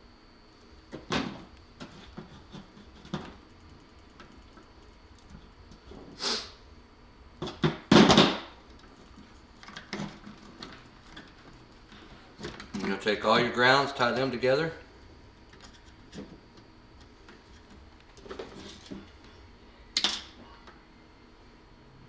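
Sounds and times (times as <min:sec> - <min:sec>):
short hiss: 0:06.2 - 0:06.6.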